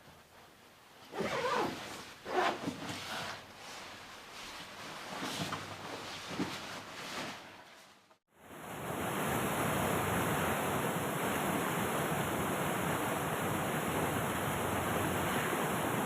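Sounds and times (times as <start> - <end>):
rustling and scraping: 0.0 - 8.2.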